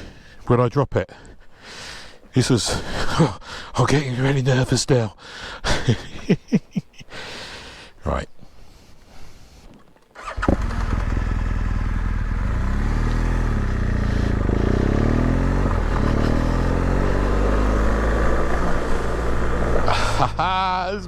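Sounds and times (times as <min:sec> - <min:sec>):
motorcycle engine running: 0:10.2 - 0:20.6.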